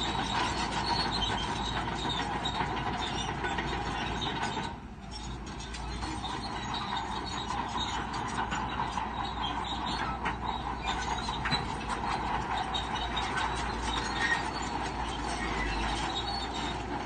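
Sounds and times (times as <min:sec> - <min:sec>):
diesel engine running: 0:00.0 - 0:17.0
steel tracks clanking: 0:00.0 - 0:17.0.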